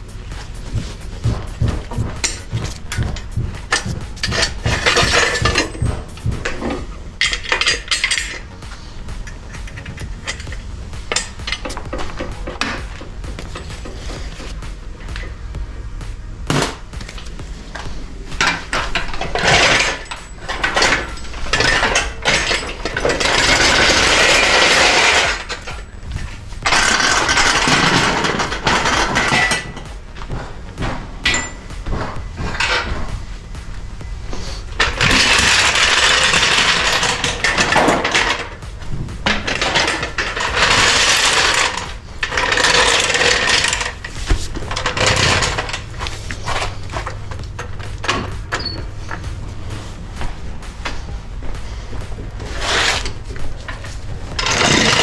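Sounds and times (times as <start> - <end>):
steady rasping: 0.0 - 55.0
metal tools clinking on engine parts: 0.2 - 14.0, 17.8 - 33.1, 34.6 - 49.3.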